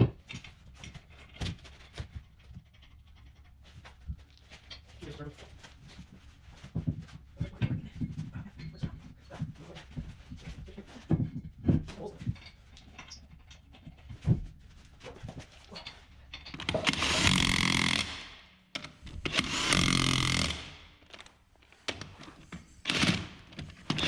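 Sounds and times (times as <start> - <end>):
power tool running: 16.8 - 18.3, 19.3 - 20.8.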